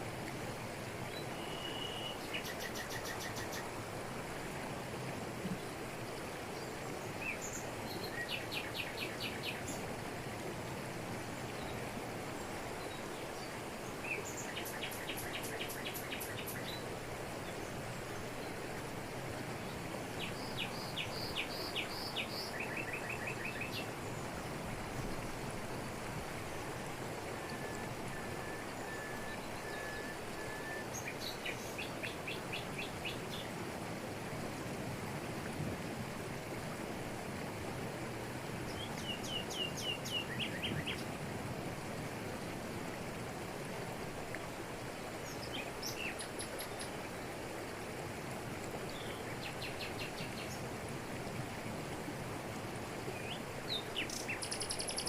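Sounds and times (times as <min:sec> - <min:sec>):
waterfall rushing over rocks: 0:02.1 - 0:55.0
short evenly spaced bird notes: 0:53.2 - 0:55.0.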